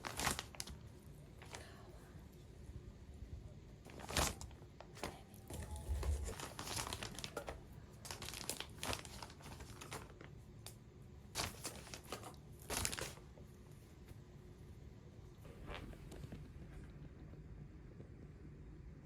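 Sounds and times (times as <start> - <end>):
packaging crinkling and tearing: 0.0 - 0.8, 3.9 - 13.3.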